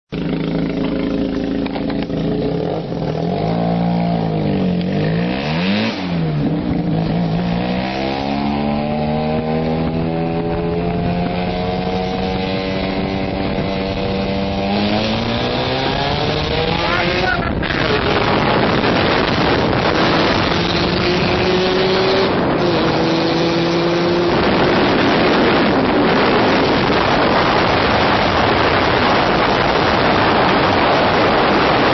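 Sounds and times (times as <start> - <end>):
rotary engine running: 0.1 - 4.2.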